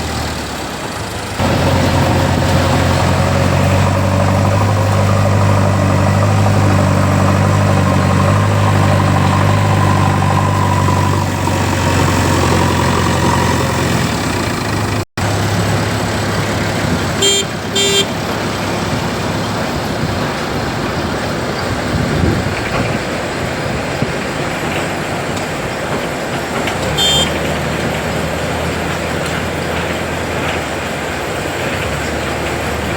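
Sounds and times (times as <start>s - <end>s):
diesel engine running: 0.0s - 32.9s
noisy vehicle: 0.0s - 32.9s
short horn toots: 17.2s - 18.2s, 26.8s - 27.5s.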